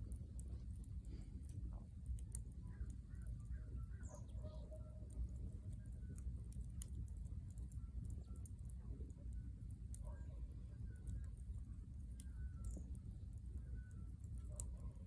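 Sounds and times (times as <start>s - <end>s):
campfire crackling: 0.0s - 15.0s
bird calls: 3.9s - 4.9s.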